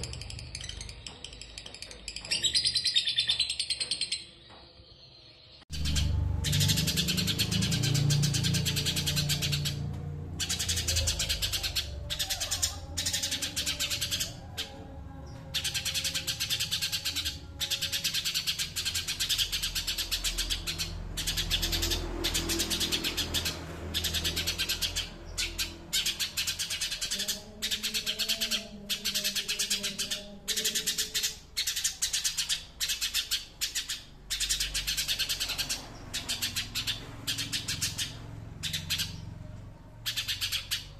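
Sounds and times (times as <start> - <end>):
songbird ticking chatter: 0.0 - 4.6.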